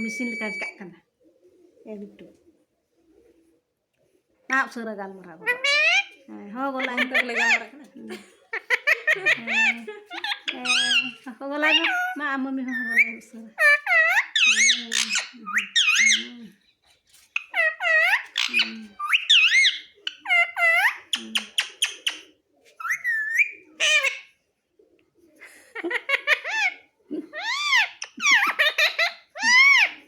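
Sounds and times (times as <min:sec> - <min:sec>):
parrot squawking and chattering: 0:05.4 - 0:07.8, 0:08.5 - 0:16.4, 0:17.3 - 0:24.4, 0:25.8 - 0:30.0.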